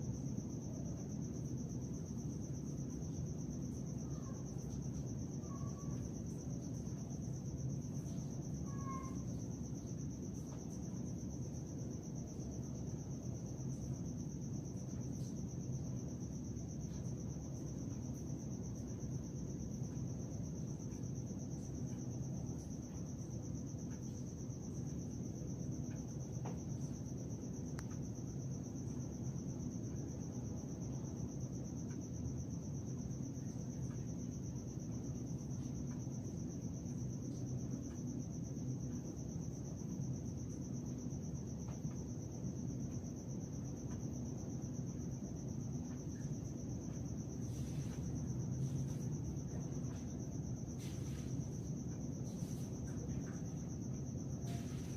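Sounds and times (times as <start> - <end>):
crickets trilling: 0.0 - 54.9
faint ticks: 17.8 - 39.8.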